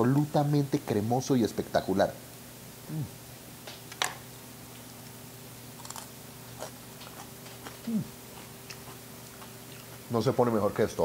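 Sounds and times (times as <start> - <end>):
steady low hum: 0.0 - 11.0
person chewing crunchy food: 5.8 - 10.1.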